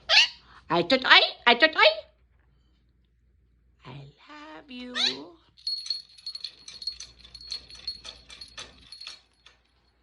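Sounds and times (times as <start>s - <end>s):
steady high ringing: 5.5s - 10.0s
metallic jingling and clicks: 5.6s - 10.0s.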